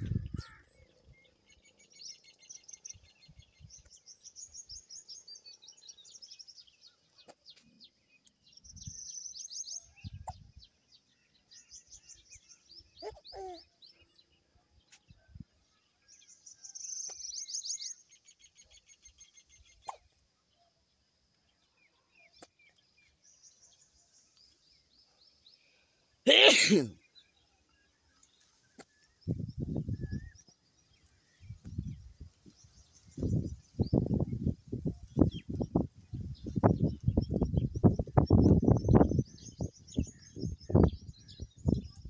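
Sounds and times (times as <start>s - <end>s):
small birds trilling: 0.0s - 14.5s.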